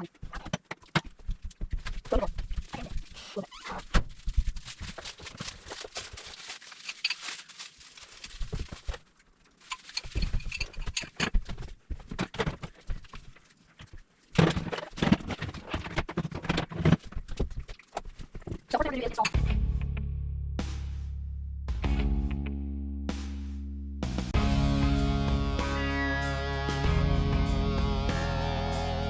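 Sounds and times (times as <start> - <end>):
objects knocking and thunking: 0.1 - 3.0, 9.7 - 19.6
rustling: 0.1 - 19.0.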